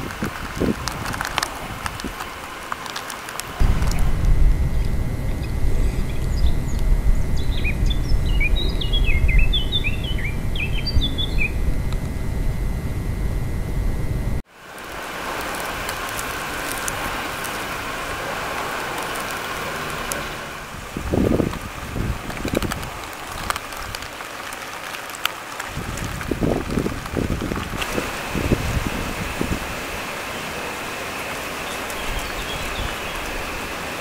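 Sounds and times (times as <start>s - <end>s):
steady hiss: 0.0s - 34.0s
low rumble: 3.6s - 14.4s
songbird twittering: 3.9s - 11.8s, 31.6s - 33.6s.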